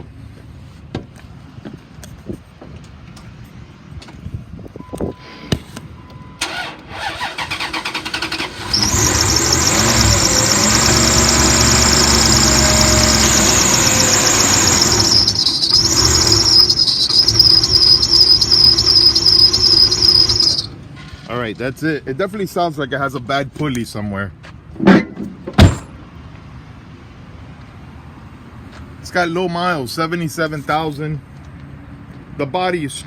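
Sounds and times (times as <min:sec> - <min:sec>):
short beep: 0:04.8 - 0:06.4, 0:14.9 - 0:20.7
belt squealing: 0:06.4 - 0:20.7
engine starter cranking: 0:06.4 - 0:20.7.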